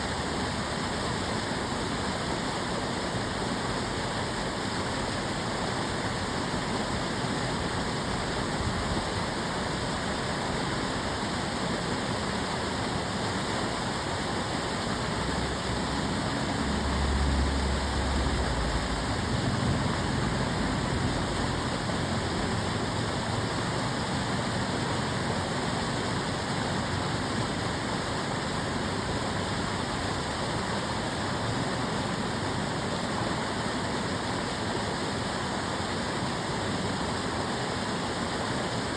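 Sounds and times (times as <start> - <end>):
water rushing along channel: 0.0 - 38.9
low rumble: 16.1 - 22.8.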